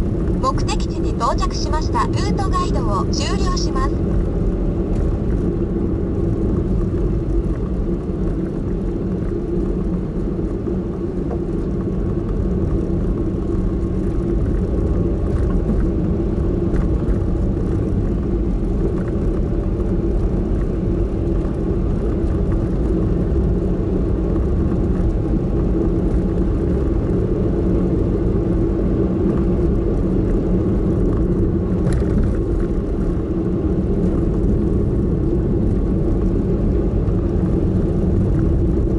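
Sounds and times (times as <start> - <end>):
faint hum: 0.0 - 4.2
engine and tyre drone: 0.0 - 38.9.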